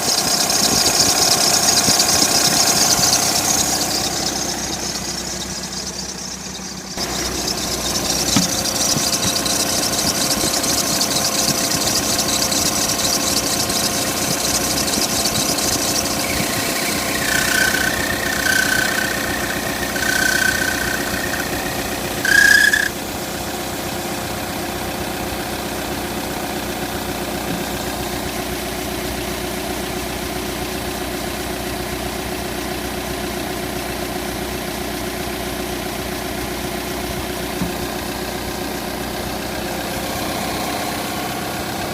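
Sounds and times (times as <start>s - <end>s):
high squeal: 0.0s - 23.0s
car engine running: 0.0s - 41.9s.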